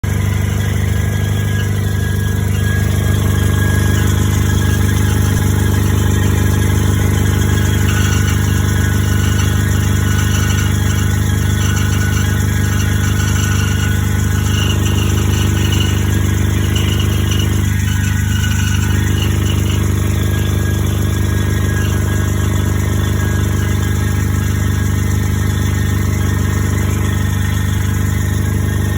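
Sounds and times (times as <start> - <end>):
car engine running: 0.0 - 28.9
noise from engine front: 0.0 - 28.9.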